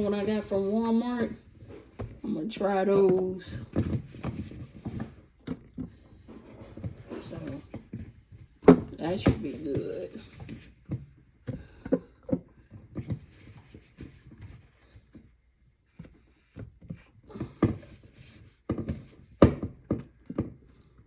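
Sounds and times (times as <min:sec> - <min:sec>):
kitchen knocks and thumps: 0:01.7 - 0:13.2, 0:18.7 - 0:20.7.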